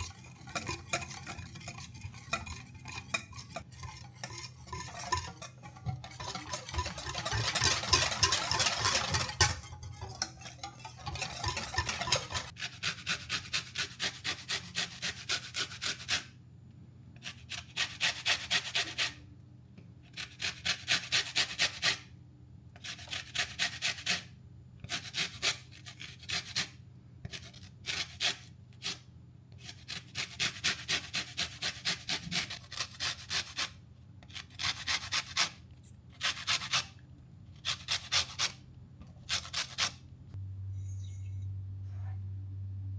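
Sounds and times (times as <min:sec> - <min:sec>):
hand whisk beating batter: 0:00.0 - 0:12.6.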